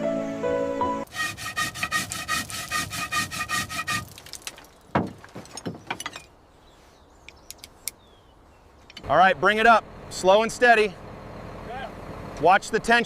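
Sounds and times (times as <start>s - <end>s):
scraping on metal: 1.1s - 4.4s
knocks: 4.5s - 6.3s.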